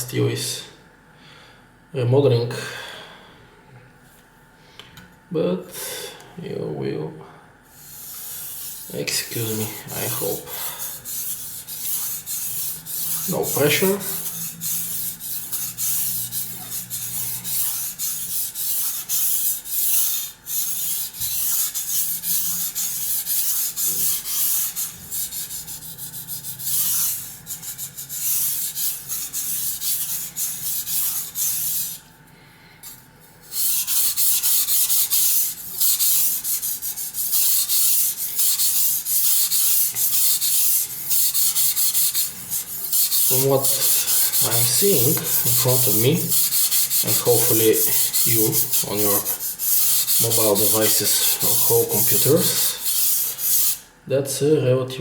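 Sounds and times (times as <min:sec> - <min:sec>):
knife scraping on wet whetstone: 0:33.5 - 0:53.8.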